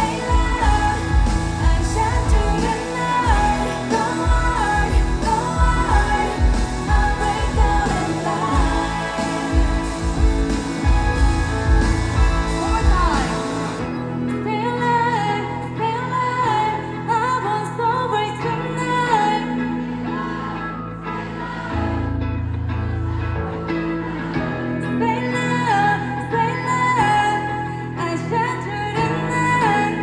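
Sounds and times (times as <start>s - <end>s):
pulsing bass beat: 0.0s - 13.9s
person singing: 0.0s - 21.7s
synths: 0.0s - 30.0s.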